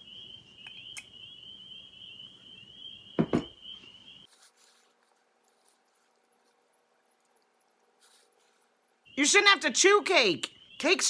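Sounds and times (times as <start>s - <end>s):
faint very high steady tone: 0.0s - 11.0s
fork knocking against a mug: 3.2s - 3.5s.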